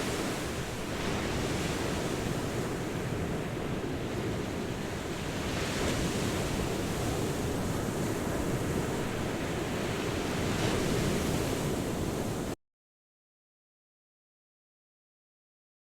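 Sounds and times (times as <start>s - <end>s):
waves washing on shore: 0.0s - 12.6s.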